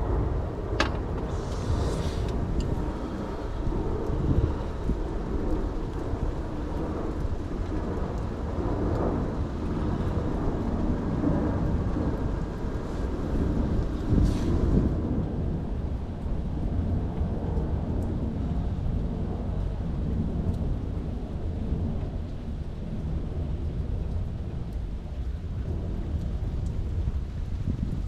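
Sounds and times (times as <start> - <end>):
rain on a car: 0.0 - 28.0
faint drip ticks: 16.2 - 28.0.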